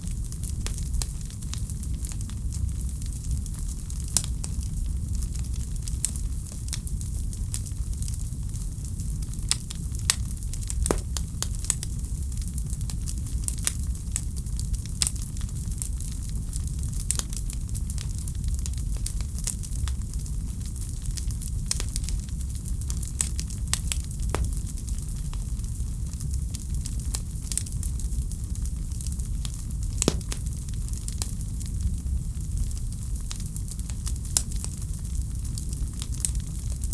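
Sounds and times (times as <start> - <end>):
wood fire crackling: 9.0 - 12.8, 18.7 - 36.9.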